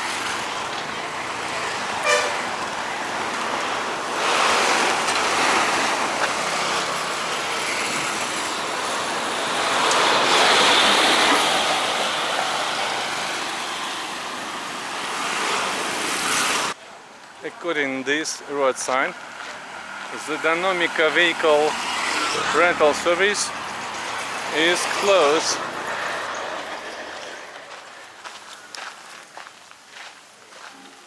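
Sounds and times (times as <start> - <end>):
street traffic passing: 0.0 - 31.0.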